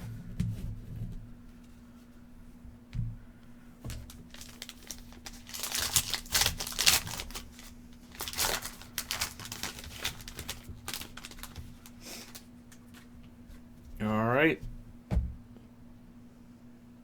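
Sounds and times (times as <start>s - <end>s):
foil wrapper tearing and crinkling: 3.9s - 12.5s.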